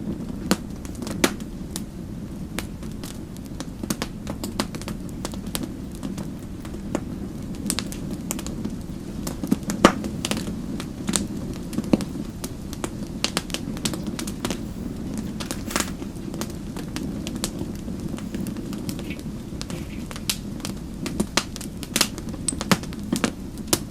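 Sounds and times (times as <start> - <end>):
low rumble of flames: 0.0 - 23.9
wood fire crackling and popping: 0.0 - 23.9.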